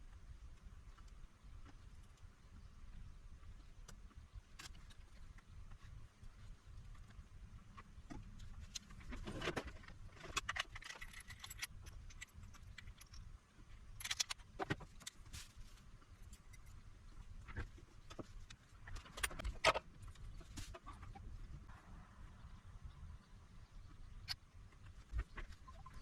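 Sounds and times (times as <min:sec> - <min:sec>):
hand tools clicking and clinking: 0:10.2 - 0:13.3.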